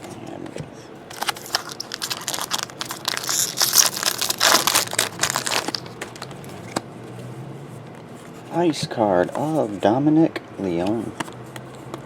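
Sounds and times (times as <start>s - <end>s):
foil wrapper crinkling and tearing: 1.1s - 6.5s.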